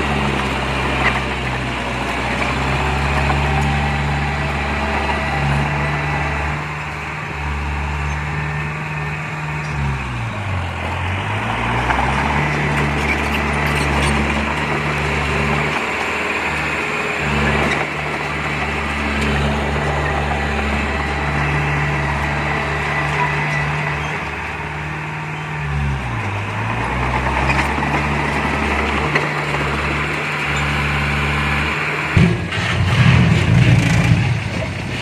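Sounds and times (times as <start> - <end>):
heavy diesel engine running: 0.0 - 35.0
low rumble: 32.2 - 35.0.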